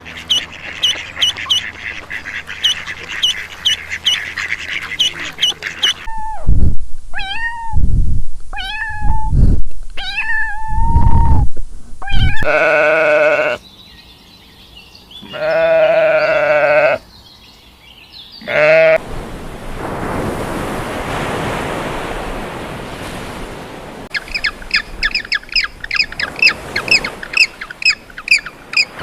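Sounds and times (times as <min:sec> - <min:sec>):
cat meowing: 0:07.2 - 0:07.8, 0:08.6 - 0:09.3, 0:10.0 - 0:11.2
buzzy animal call: 0:12.0 - 0:13.6, 0:15.2 - 0:17.0.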